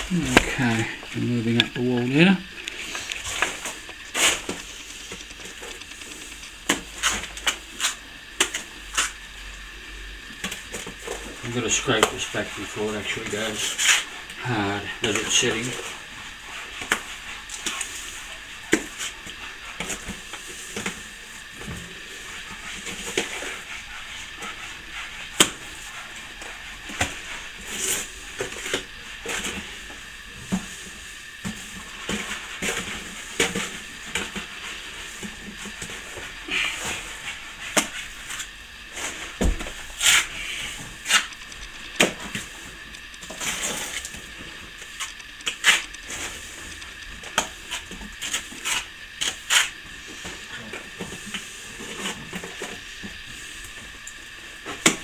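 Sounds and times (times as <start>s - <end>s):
tool tapping and clicking: 41.1s - 47.5s.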